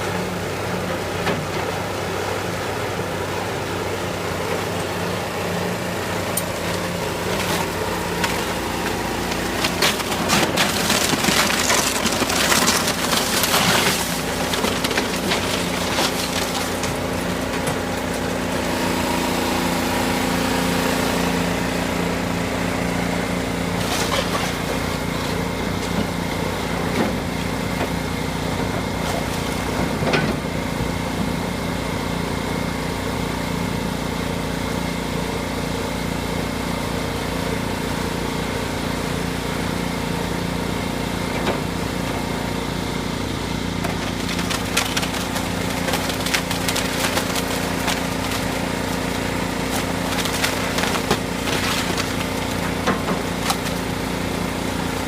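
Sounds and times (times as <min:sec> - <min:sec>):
heavy machine engine running: 0:00.0 - 0:55.0
material crunching and splintering: 0:06.4 - 0:18.6, 0:23.7 - 0:26.0, 0:43.7 - 0:54.7
falling debris knocks: 0:07.4 - 0:18.2, 0:43.8 - 0:53.9.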